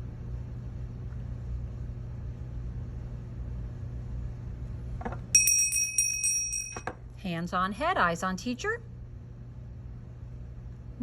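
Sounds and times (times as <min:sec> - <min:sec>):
steady low hum: 0:00.0 - 0:11.0
small bell ringing: 0:05.3 - 0:06.9.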